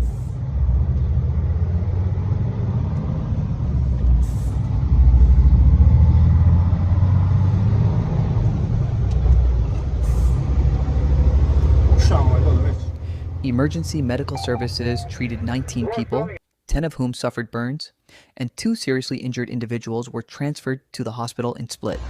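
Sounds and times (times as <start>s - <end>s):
car engine and road noise: 0.0s - 16.4s.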